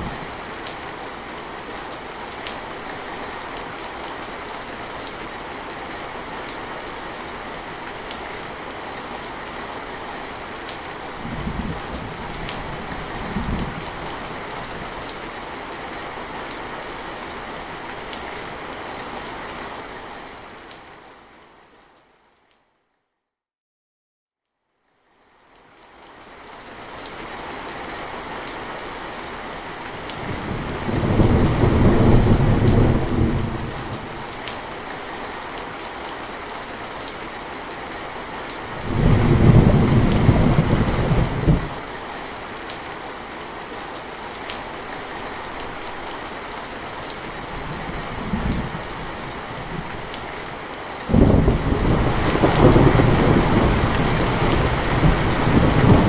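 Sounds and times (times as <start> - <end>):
steady rain falling: 0.0 - 22.6, 24.9 - 56.0
low thunder rumbling: 30.2 - 34.2, 38.8 - 41.8, 47.6 - 50.1, 51.1 - 56.0.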